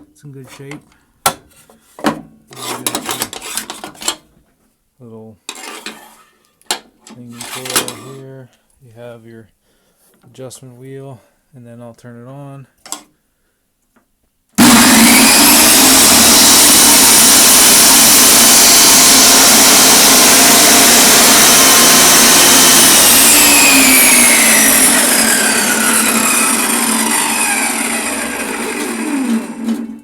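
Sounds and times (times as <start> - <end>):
table saw running and spinning down: 14.6 - 30.0.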